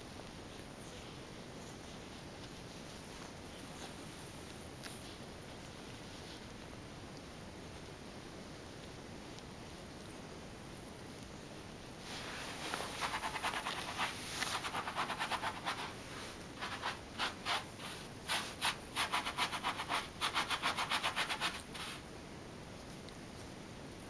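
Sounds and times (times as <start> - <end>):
puppy scratching and scuffling: 12.1 - 22.0.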